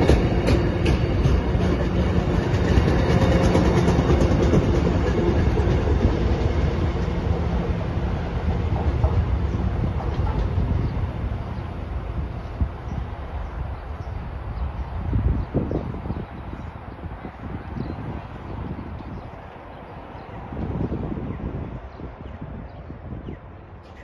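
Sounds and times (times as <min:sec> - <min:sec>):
wheels clicking over rail joints: 0:00.0 - 0:07.4
train rumbling past: 0:00.0 - 0:23.8.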